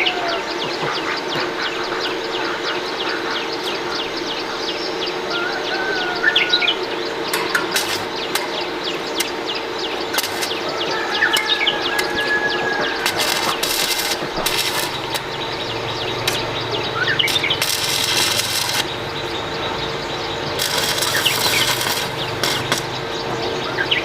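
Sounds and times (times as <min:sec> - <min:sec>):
birds chirping: 0:00.0 - 0:24.0
steady hum: 0:00.0 - 0:24.0.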